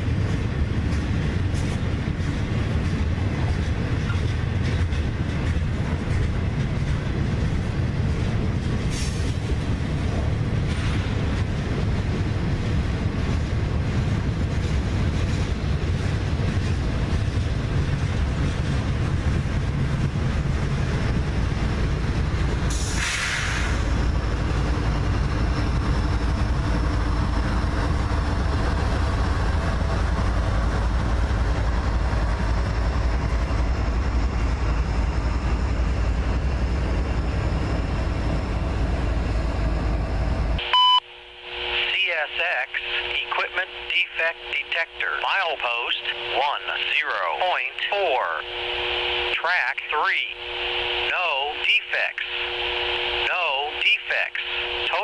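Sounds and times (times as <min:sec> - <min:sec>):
freight train rolling on rails: 0:00.0 - 0:40.6
short hiss: 0:22.8 - 0:23.8.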